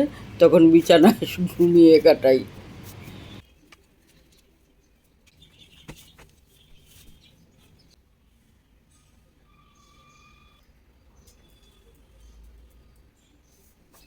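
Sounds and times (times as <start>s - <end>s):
faint bird chirps: 8.9s - 14.0s.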